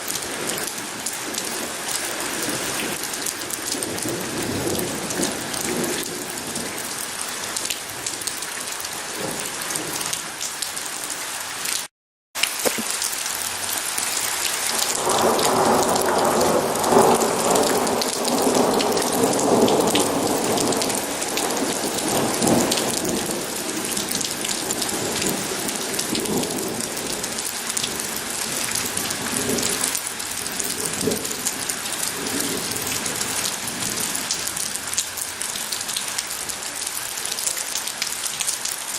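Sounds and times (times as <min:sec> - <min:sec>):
heavy rain falling: 0:00.0 - 0:38.9
roll of thunder: 0:14.9 - 0:25.4.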